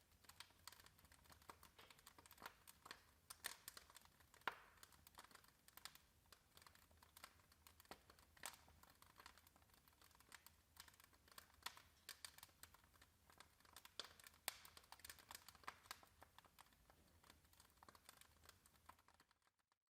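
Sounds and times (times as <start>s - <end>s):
wood fire crackling: 0.0s - 19.6s.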